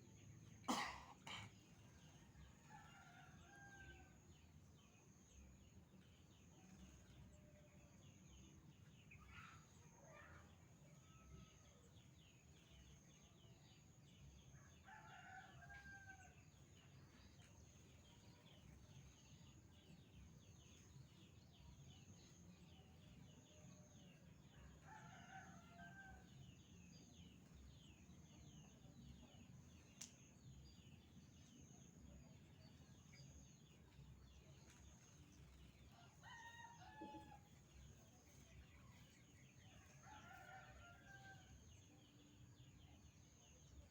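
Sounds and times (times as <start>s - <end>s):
distant rooster crowing: 14.8s - 16.4s, 24.7s - 26.3s, 36.0s - 37.5s.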